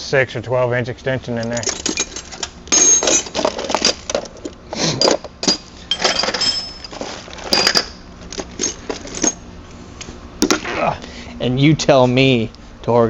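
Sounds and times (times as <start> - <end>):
metal tools clinking: 1.4 - 9.4.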